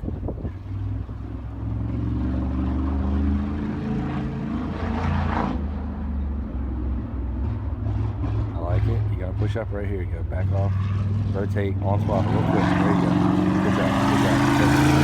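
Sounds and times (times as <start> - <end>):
race car engine on throttle: 0.0 - 15.0.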